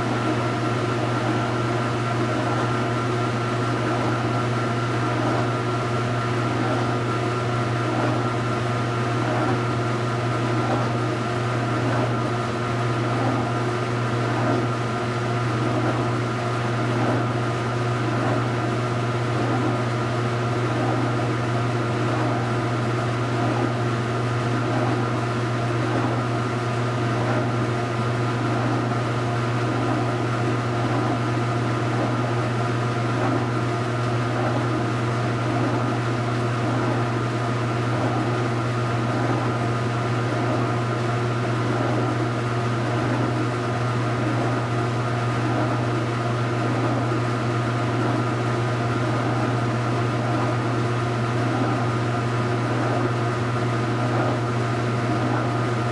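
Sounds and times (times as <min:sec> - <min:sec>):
washing machine churning: 0:00.0 - 0:55.9.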